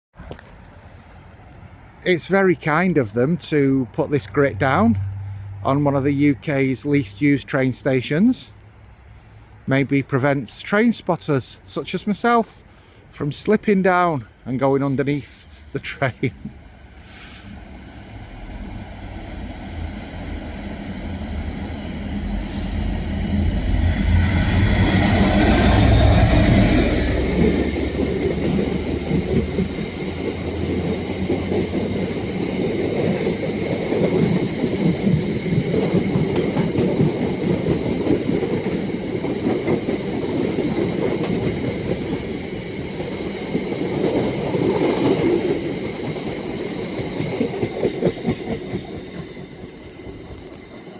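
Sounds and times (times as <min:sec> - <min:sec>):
diesel train engine hum: 0:00.2 - 0:50.9
train wheels clattering over rail joints: 0:24.3 - 0:50.9.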